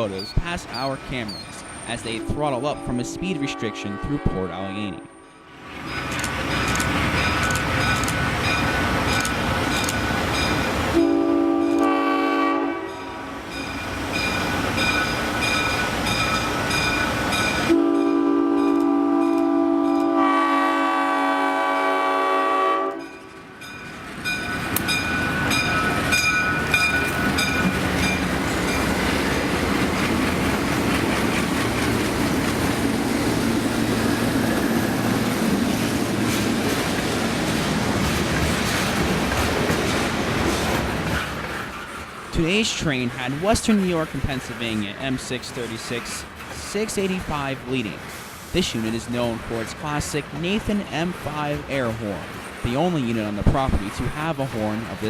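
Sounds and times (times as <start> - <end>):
diesel locomotive engines under load: 0.0 - 55.0
locomotive air horn blasts: 2.1 - 5.4, 10.9 - 13.4, 17.7 - 23.2
wheels clattering over rails: 23.6 - 42.2.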